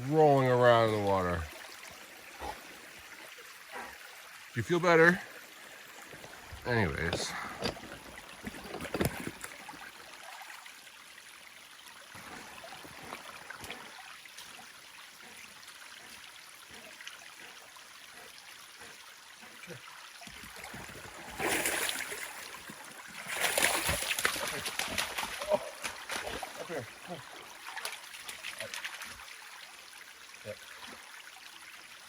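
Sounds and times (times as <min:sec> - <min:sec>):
stream trickling and gurgling: 0:00.0 - 0:32.0
water splashing: 0:04.6 - 0:10.7, 0:12.1 - 0:29.4.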